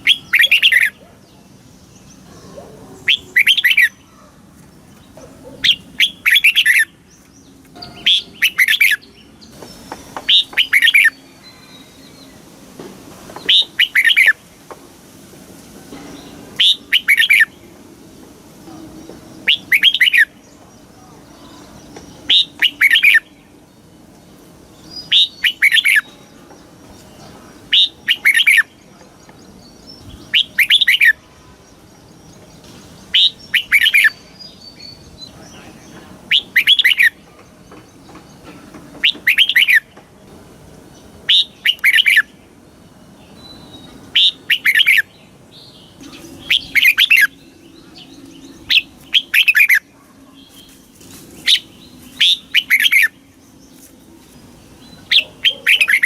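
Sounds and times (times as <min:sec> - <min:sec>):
bulbul singing falling phrases: 0:00.0 - 0:12.6, 0:15.9 - 0:56.0.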